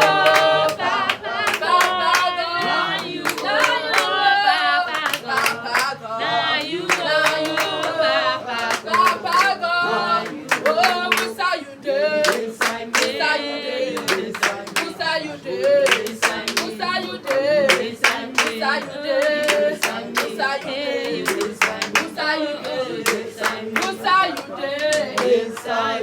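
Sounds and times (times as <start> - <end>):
hands clapping: 0.0 - 11.5, 12.2 - 25.9
voices singing worship song: 0.0 - 26.0.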